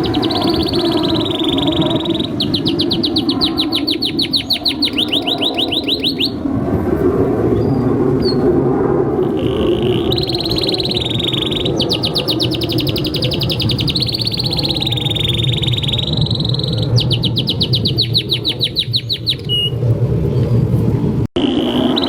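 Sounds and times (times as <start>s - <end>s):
canary singing: 0.0s - 6.4s, 9.2s - 19.8s, 21.4s - 22.0s.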